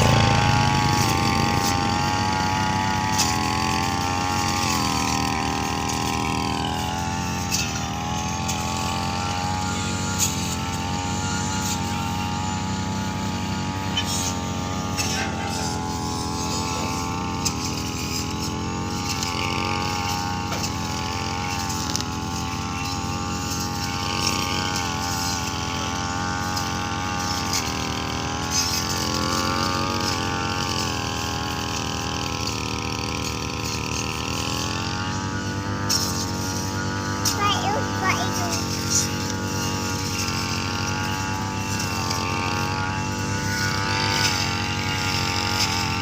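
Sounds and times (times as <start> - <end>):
vehicle engine running: 0.0 - 25.4, 35.6 - 46.0.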